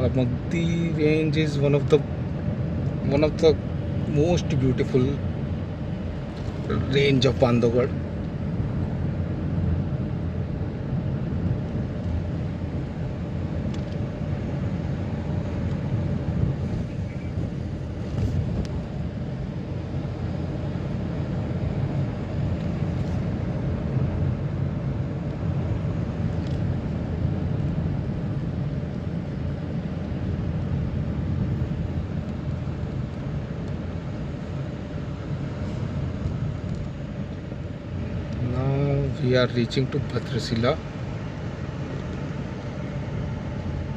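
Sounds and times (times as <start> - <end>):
vehicle engine and road rumble: 0.0 - 43.9.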